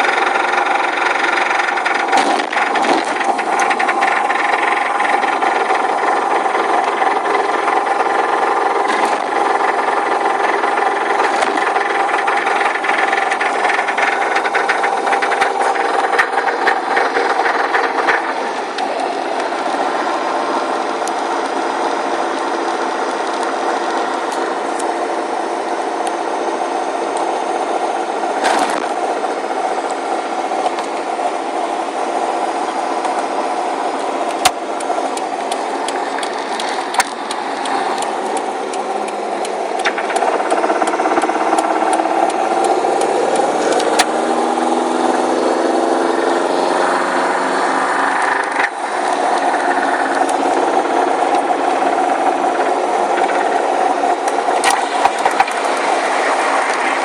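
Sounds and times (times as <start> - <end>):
engine rod knock rattling: 0.0 - 19.3, 34.3 - 44.2
car engine running: 0.0 - 57.0.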